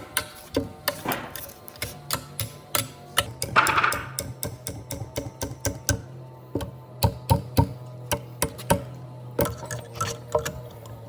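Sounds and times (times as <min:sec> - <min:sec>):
tools knocking on wood: 0:03.4 - 0:05.8.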